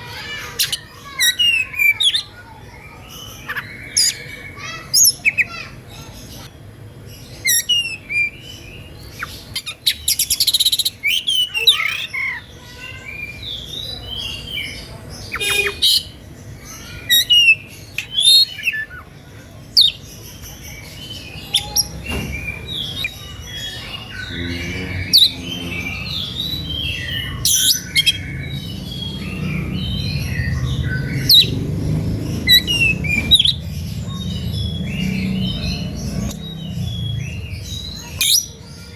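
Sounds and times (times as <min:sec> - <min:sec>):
low hum: 0:24.2 - 0:27.4.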